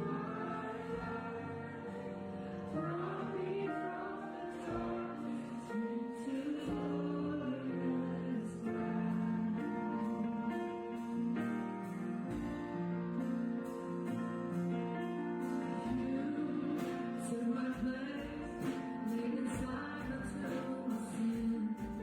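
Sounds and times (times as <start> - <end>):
instrumental accompaniment: 0.0 - 22.0
voices singing worship music: 0.0 - 22.0.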